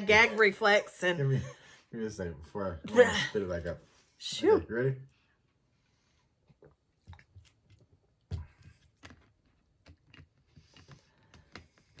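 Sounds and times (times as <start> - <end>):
person drinking and chewing: 6.6 - 7.8.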